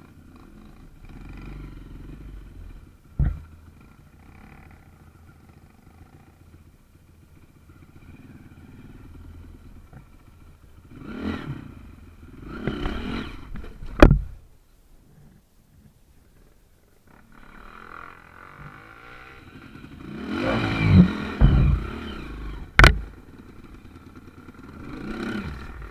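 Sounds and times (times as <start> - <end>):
motorcycle engine revving: 0.0 - 14.4, 17.0 - 25.9
sharp knock: 21.4 - 22.0.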